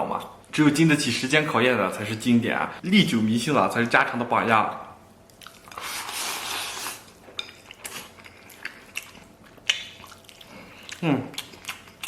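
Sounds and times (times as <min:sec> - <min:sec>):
chewing sounds: 0:05.2 - 0:12.0.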